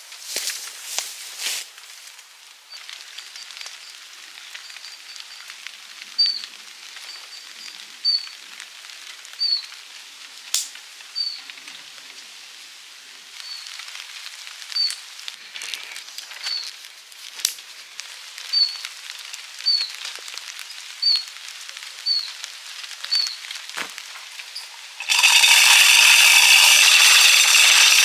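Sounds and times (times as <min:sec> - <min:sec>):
light rain patter: 0:00.0 - 0:28.0
small bird chirping: 0:06.2 - 0:06.5, 0:07.1 - 0:08.4, 0:09.4 - 0:09.7, 0:11.2 - 0:11.5, 0:13.4 - 0:13.8, 0:14.7 - 0:15.0, 0:16.4 - 0:16.8, 0:18.5 - 0:18.9, 0:19.6 - 0:20.0, 0:21.0 - 0:21.3, 0:22.0 - 0:22.4, 0:23.1 - 0:23.4.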